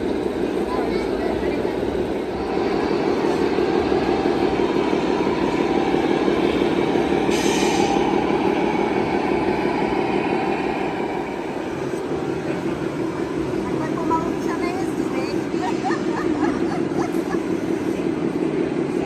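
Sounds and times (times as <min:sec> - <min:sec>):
brief high hiss: 0:07.3 - 0:08.0.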